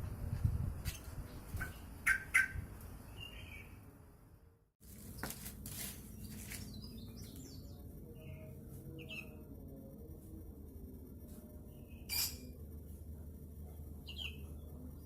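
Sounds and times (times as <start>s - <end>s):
bird chirping sharply: 11.9s - 12.6s.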